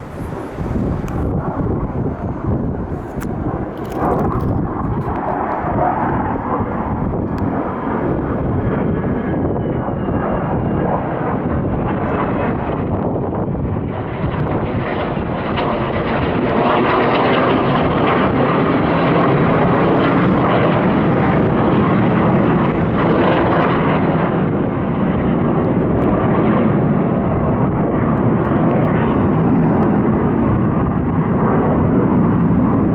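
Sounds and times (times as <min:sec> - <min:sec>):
fighter jets roaring overhead: 0:00.0 - 0:32.9.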